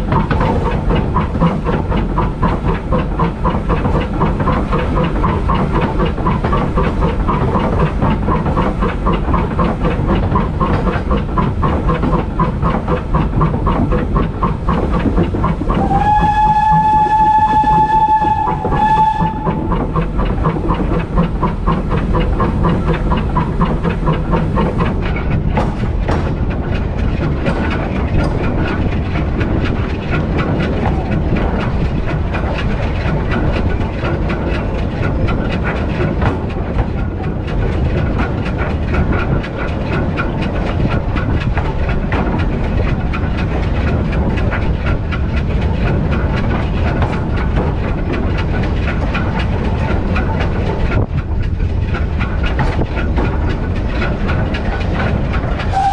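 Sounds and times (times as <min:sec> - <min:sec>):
steam locomotive running rhythmically: 0:00.0 - 0:55.9
steam locomotive whistle: 0:15.7 - 0:19.9.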